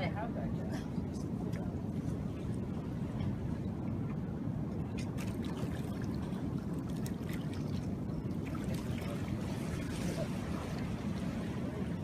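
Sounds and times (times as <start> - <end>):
wind and surf rumble: 0.0 - 12.0
water splashing and trickling: 4.8 - 12.0.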